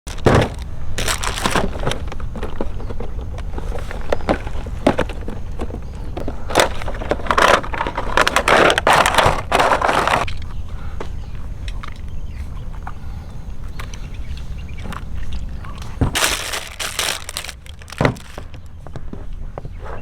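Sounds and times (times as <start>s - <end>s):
crunching and crackling clicks: 0.1s - 20.0s.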